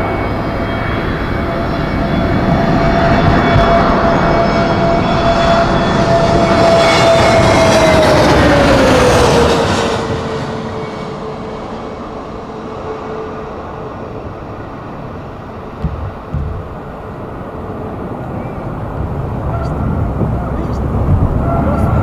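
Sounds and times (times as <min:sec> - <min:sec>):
jet engines roaring: 0:00.0 - 0:22.0
brief thump: 0:15.8 - 0:16.9.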